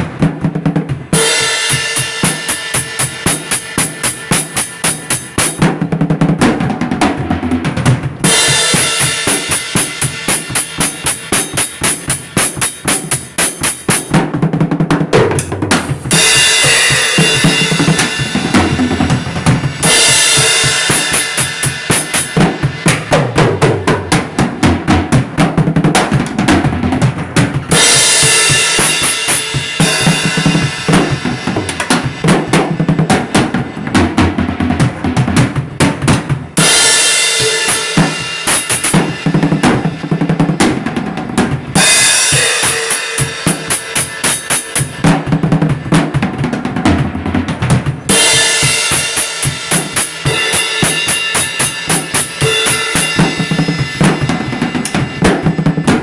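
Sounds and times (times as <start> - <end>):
bass drum and snare beat: 0.0 - 56.0
cymbals washing: 48.1 - 55.6.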